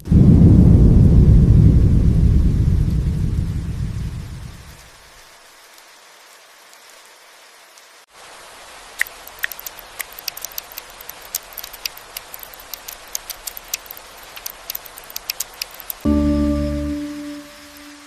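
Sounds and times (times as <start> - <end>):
rain hissing: 0.0 - 18.0
sharp drop ticks: 9.0 - 17.9
low held musical tone: 16.0 - 18.0.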